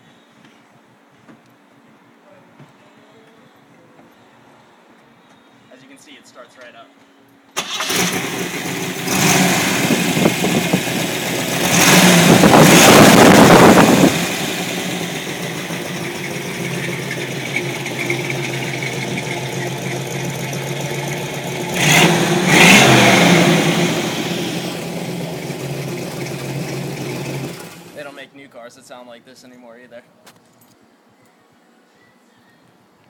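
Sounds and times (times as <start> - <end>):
car engine starting and revving: 7.6 - 28.0.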